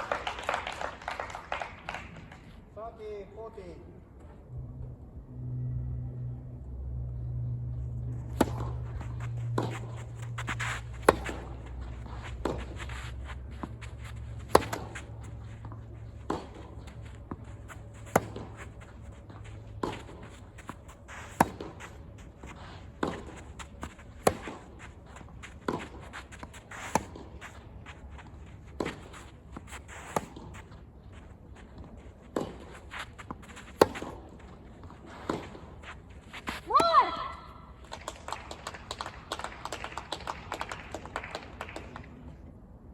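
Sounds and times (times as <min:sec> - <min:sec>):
low steady hum: 0:03.5 - 0:38.3
footsteps shuffling on court: 0:07.7 - 0:37.9
tennis racket hitting ball: 0:08.1 - 0:27.6, 0:32.3 - 0:34.4.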